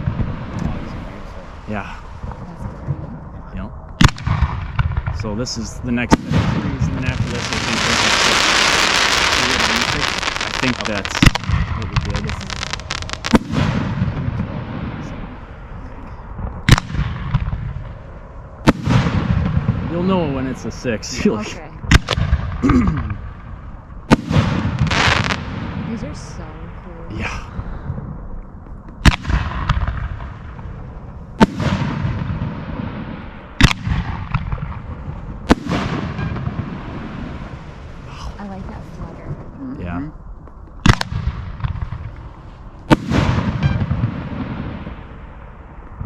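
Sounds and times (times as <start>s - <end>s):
loud sharp firework boom: 0.0s - 15.4s, 16.3s - 28.2s, 29.0s - 39.5s, 40.8s - 46.0s
firework crack: 0.0s - 46.0s
fireworks rumbling bursts: 0.0s - 46.0s.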